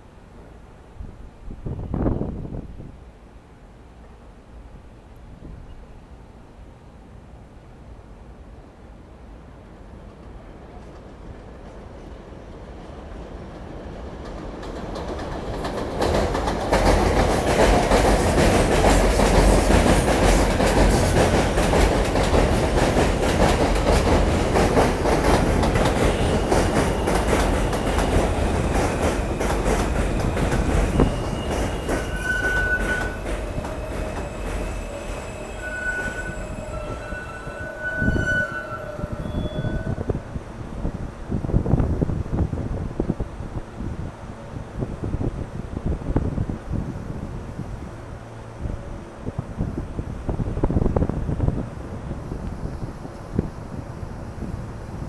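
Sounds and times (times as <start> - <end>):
subway train wheels clattering: 8.6 - 55.0
high-pitched wheel squeals: 29.7 - 40.4.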